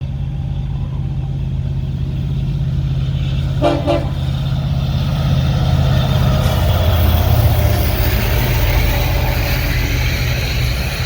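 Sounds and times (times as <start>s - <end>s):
diesel locomotive rumbling: 0.0s - 11.0s
locomotive horn blasts: 3.6s - 4.3s.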